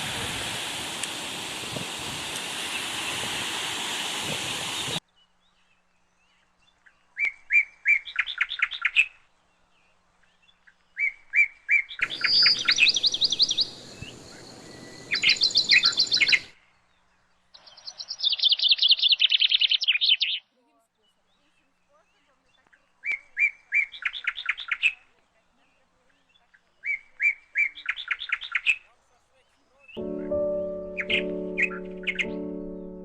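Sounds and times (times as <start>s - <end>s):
waterfall rushing: 0.0s - 5.0s
small bird chirping: 4.8s - 32.9s.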